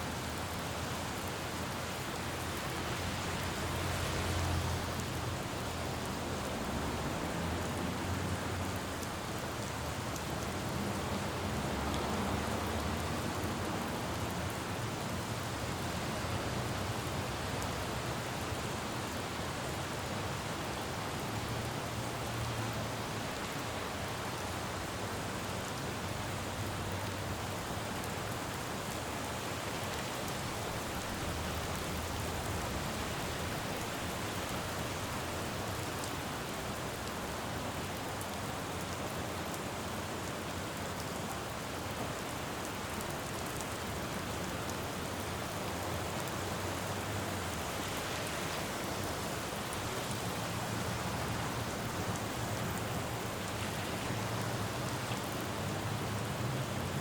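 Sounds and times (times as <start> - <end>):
rain falling on road: 0.0 - 57.0
low rumble of passing traffic: 0.2 - 19.7, 20.4 - 38.4, 41.0 - 57.0.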